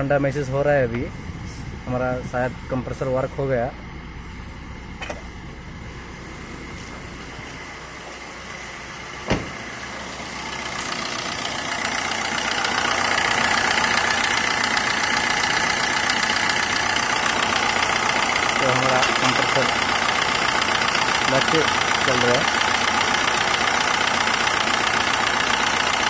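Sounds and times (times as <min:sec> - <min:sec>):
car engine idling: 0:00.0 - 0:26.0
sharp thump: 0:09.2 - 0:09.6.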